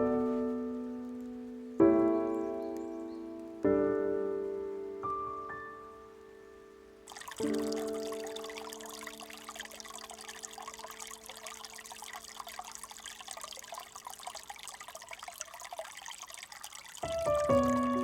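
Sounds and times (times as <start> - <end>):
stream trickling and babbling: 0.0 - 3.8, 5.1 - 18.0
music: 0.0 - 7.0, 17.1 - 18.0.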